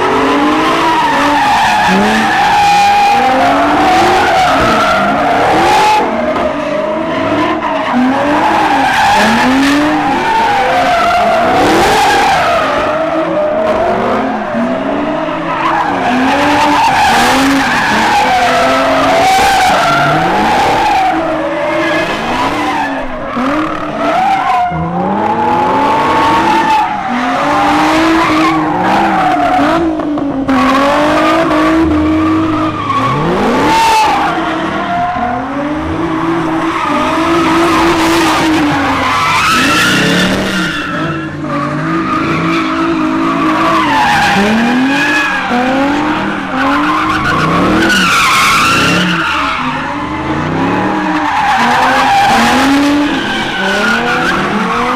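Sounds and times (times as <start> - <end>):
car engines revving: 0.0 - 54.9.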